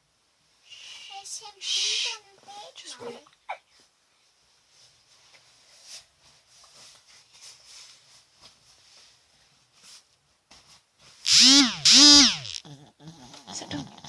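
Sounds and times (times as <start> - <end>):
dog snoring: 12.6 - 14.0.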